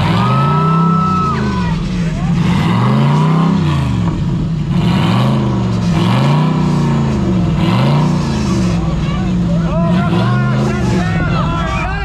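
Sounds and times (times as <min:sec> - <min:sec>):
off-road engine revving hard: 0:00.0 - 0:12.0.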